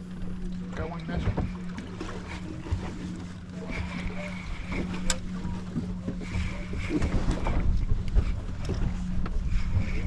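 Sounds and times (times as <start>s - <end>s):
outboard motor running: 0.0s - 10.0s
water slapping boat hull: 0.0s - 10.0s
wind buffeting microphone: 3.6s - 10.0s.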